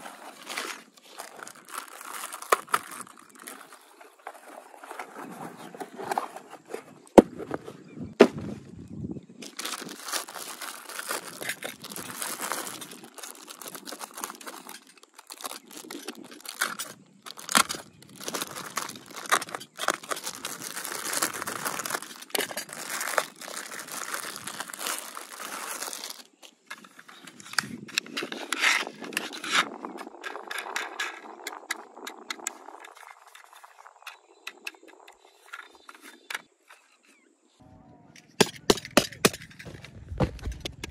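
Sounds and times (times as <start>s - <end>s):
packaging crinkling and tearing: 0.0s - 5.4s, 9.4s - 29.5s.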